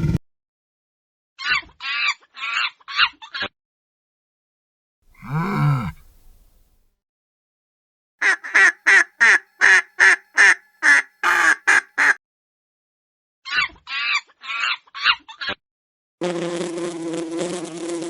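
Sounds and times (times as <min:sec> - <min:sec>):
duck quacking: 0:08.2 - 0:12.2.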